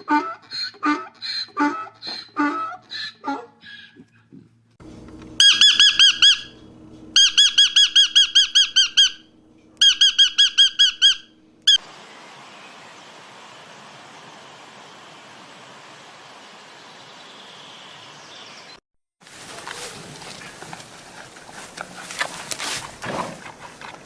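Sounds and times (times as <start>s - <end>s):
bird calling squeaky notes: 5.3s - 11.8s
steady hiss: 11.8s - 18.6s.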